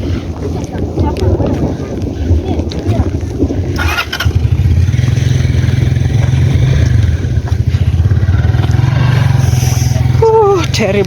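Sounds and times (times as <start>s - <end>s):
motorcycle engine droning: 3.7s - 11.0s.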